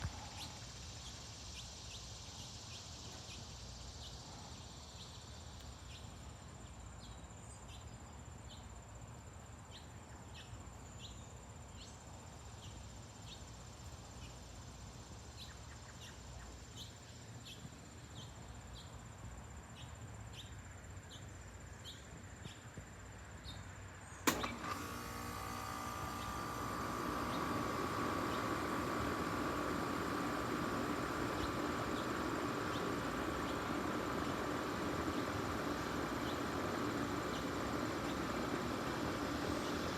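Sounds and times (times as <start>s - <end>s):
steady noise with hum: 0.0s - 39.9s
sharp click: 24.3s - 24.8s.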